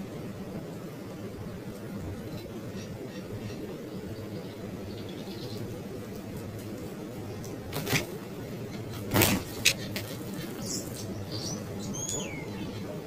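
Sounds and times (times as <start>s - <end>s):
bird chirps: 8.7s - 13.0s.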